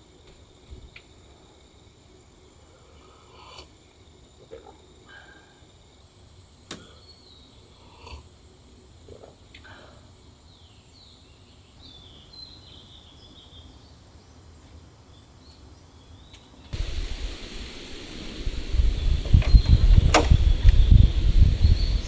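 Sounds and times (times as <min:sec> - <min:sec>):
birds chirping faintly: 0:15.5 - 0:22.0.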